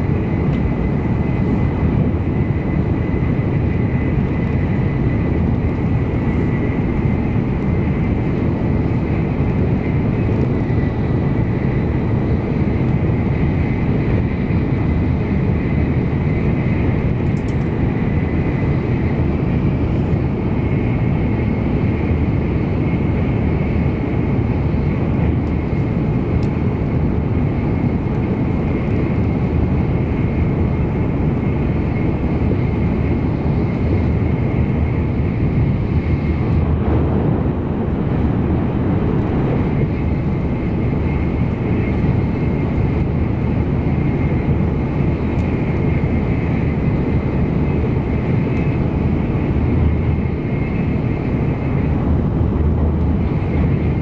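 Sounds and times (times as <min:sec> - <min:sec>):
air rushing past train: 0:00.0 - 0:54.0
train wheels rumbling on rail: 0:00.0 - 0:54.0.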